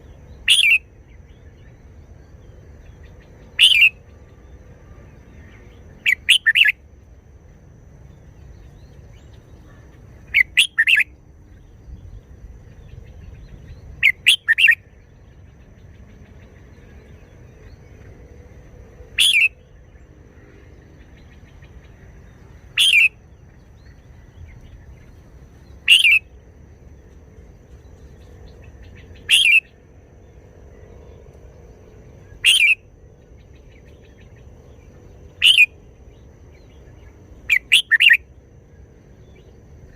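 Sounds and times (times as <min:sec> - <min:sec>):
bird singing short phrases: 0:00.0 - 0:01.8, 0:03.0 - 0:04.0, 0:05.6 - 0:06.7, 0:08.7 - 0:12.2, 0:12.8 - 0:15.0, 0:19.2 - 0:19.8, 0:22.8 - 0:24.8, 0:25.8 - 0:26.3, 0:28.6 - 0:29.8, 0:32.3 - 0:32.8, 0:35.4 - 0:35.7, 0:36.6 - 0:38.2.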